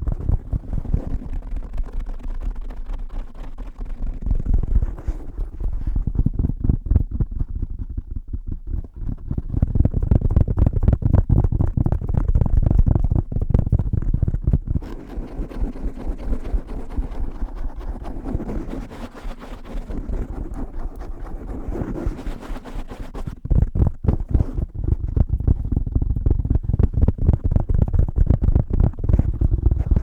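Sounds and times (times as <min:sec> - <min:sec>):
muffled tapping on microphone: 0:00.0 - 0:30.0.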